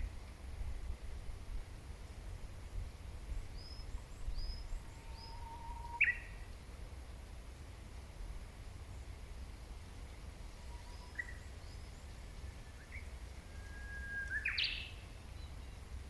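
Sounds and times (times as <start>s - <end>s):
wild birds chirping: 10.5s - 15.9s.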